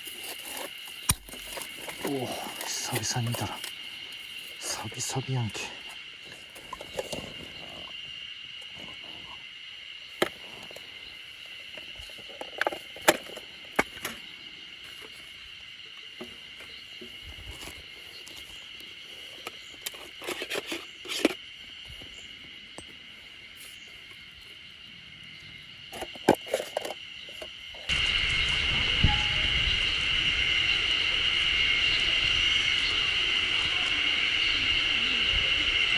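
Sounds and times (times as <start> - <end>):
high-pitched insect drone: 0.0 - 35.9
clicks and knocks of handling: 11.7 - 14.2, 16.2 - 22.1, 25.9 - 27.9.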